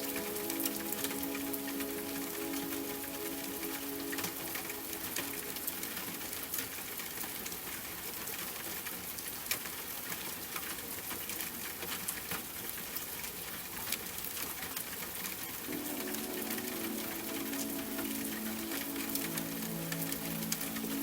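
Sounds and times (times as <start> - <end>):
soft sustained music tones: 0.0 - 7.5, 15.6 - 21.0
raindrops ticking: 0.0 - 7.7, 15.6 - 21.0
steady rain: 0.0 - 21.0.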